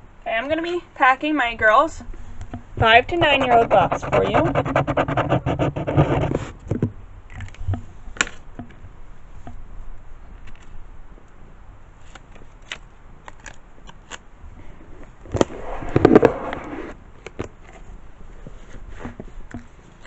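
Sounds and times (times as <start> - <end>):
paper rustling and scraping: 3.0 - 6.6, 15.3 - 17.0.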